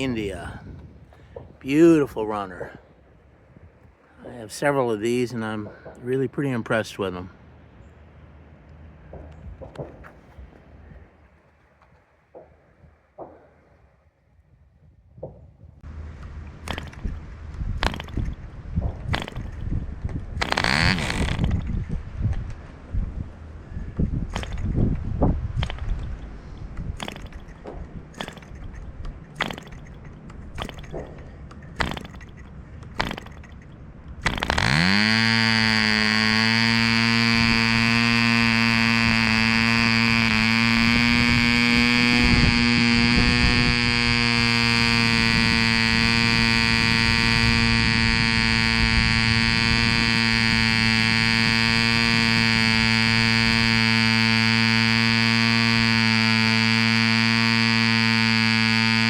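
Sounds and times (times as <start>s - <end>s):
propeller flicking clicks: 0.0s - 2.8s, 15.8s - 59.0s
model engine high-pitched buzz: 15.8s - 18.4s, 19.0s - 22.4s, 23.8s - 31.1s, 31.8s - 59.0s.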